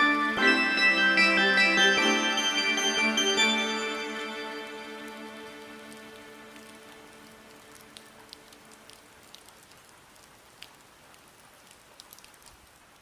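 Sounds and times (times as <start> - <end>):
held music notes: 0.0 - 8.9
faint rain hiss: 0.0 - 13.0
raindrop ticks: 5.0 - 13.0.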